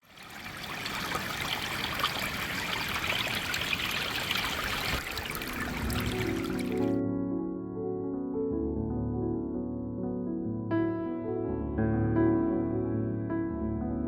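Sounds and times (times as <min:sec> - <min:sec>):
stream water splashing: 0:00.0 - 0:07.0.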